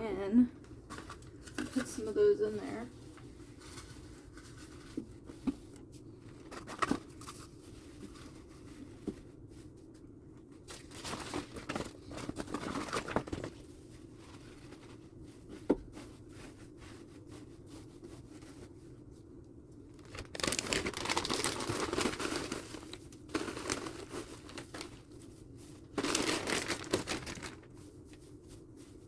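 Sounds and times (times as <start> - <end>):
faint steady hum: 0.0 - 29.0
bedding rustling: 19.9 - 29.0
cardboard knocks and crinkling: 20.0 - 22.7, 25.9 - 27.7.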